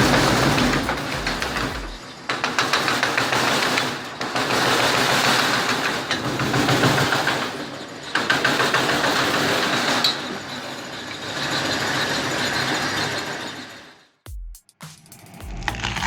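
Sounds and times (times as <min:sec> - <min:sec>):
sharp knocks: 0:00.0 - 0:02.0
firewood splitter engine clatter: 0:00.0 - 0:10.6.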